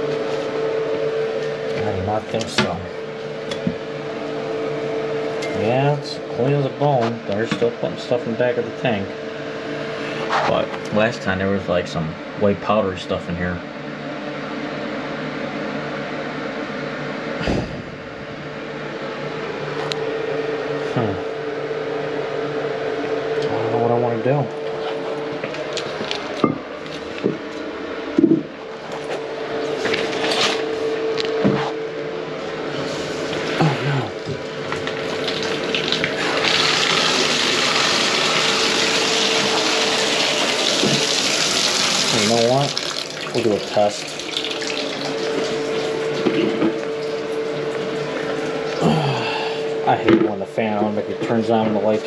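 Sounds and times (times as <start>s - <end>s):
exhaust fan humming: 0.0s - 52.0s
water running from a tap: 34.4s - 48.8s.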